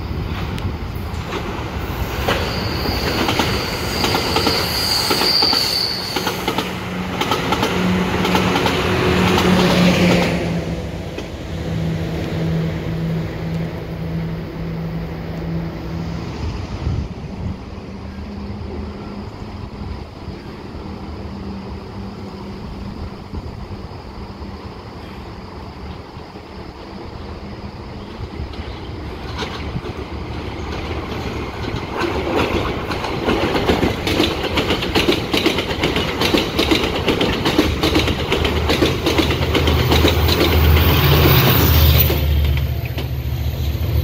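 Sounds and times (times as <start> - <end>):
train wheels clacking over rail joints: 0.3 - 11.4, 28.4 - 44.0
high wheel squeal: 1.8 - 6.6, 40.1 - 44.0.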